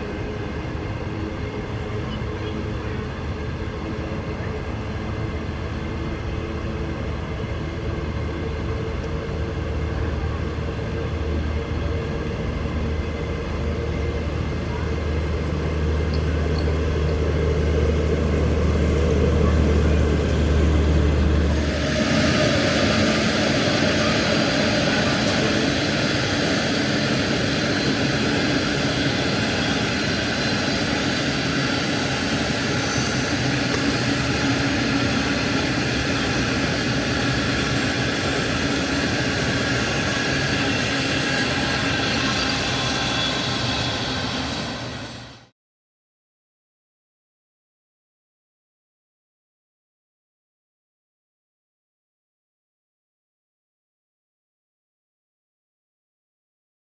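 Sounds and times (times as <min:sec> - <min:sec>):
train deep hum: 0:00.0 - 0:45.5
train rushing noise: 0:00.0 - 0:45.5.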